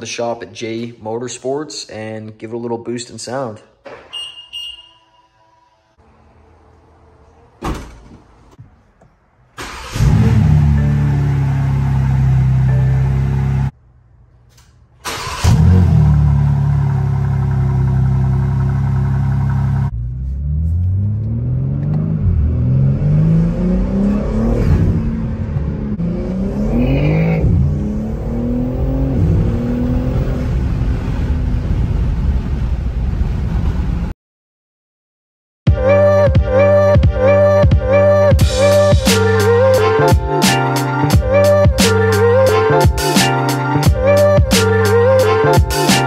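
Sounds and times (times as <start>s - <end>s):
car engine starting and revving: 9.6s - 13.7s, 15.0s - 32.7s.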